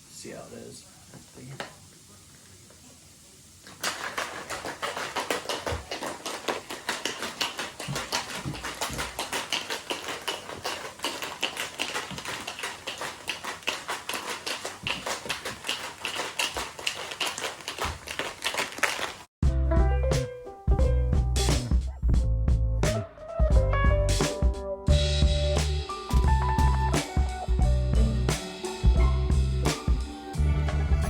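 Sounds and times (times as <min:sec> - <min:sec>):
shaker bottle clicking and knocking: 0:03.7 - 0:19.2.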